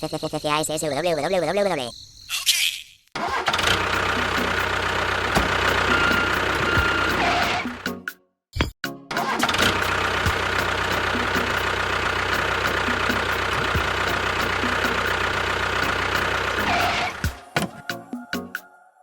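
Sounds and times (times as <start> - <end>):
engine starting and running: 3.2 - 8.0, 9.1 - 17.5.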